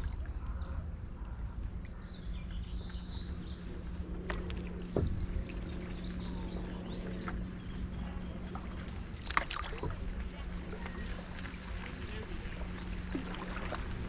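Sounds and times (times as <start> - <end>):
small birds chirping: 0.0 - 9.2, 10.2 - 13.9
low hum and rumble: 0.0 - 14.0.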